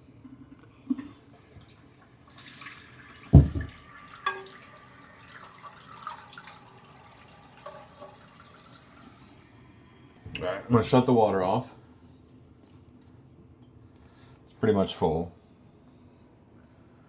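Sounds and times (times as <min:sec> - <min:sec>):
toilet tank filling with water: 0:00.0 - 0:09.8
heavy thump: 0:03.4 - 0:03.8.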